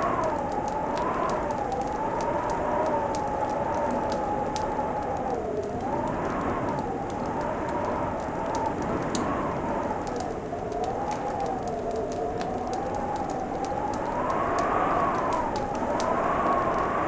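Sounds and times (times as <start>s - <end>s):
fire crackling and popping: 0.0s - 17.0s
low howl: 0.0s - 17.0s.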